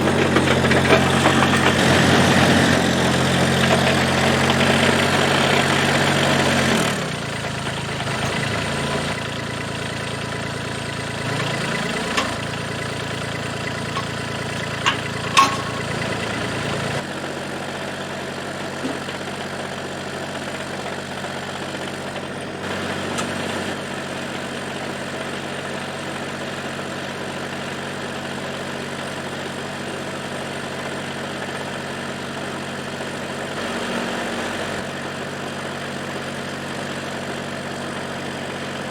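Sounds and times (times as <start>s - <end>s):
tractor diesel engine running: 0.0s - 38.9s
sharp metallic clanks: 13.8s - 17.0s.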